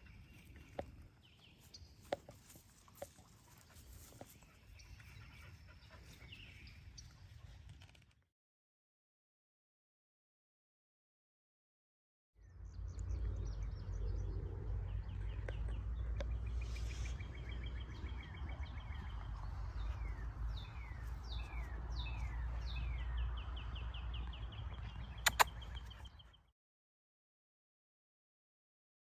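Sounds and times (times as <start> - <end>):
songbirds singing: 0.0 - 7.6, 12.4 - 26.5
sharp click: 25.3 - 25.5.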